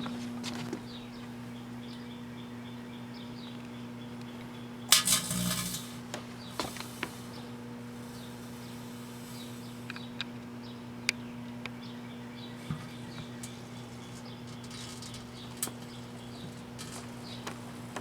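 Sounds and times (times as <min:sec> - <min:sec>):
microwave oven humming: 0:00.0 - 0:18.0
sparking crackle: 0:04.9 - 0:10.2, 0:13.0 - 0:17.8.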